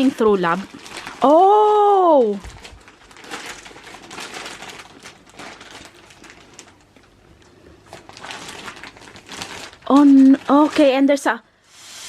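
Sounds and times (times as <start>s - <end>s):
plastic rustling and crinkling: 0.0s - 11.4s.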